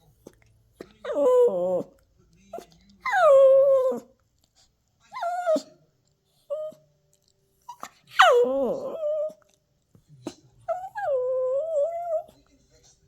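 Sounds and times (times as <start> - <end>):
puppy whining and howling: 1.0 - 2.0, 3.0 - 4.2, 5.1 - 5.8, 6.4 - 6.8, 7.7 - 9.5, 10.7 - 12.4.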